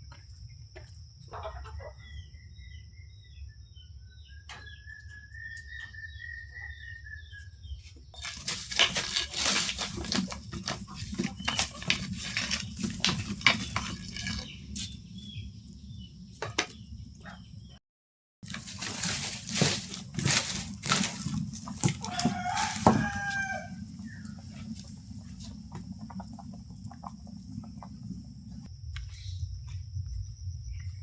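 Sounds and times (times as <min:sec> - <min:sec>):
chickens clucking: 0:01.2 - 0:02.2.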